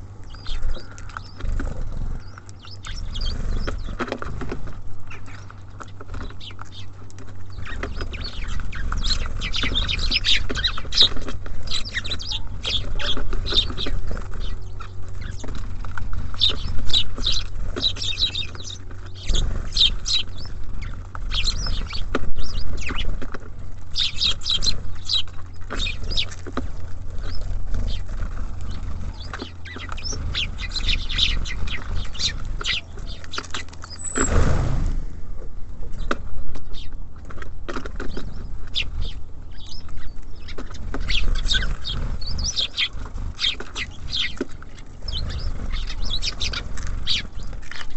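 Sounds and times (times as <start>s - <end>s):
small birds chirping: 0.0s - 47.9s
low rumble: 33.8s - 35.9s.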